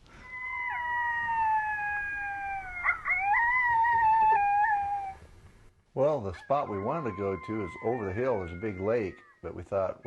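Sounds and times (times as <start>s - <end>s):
coyotes howling: 0.2s - 5.3s, 6.2s - 9.6s.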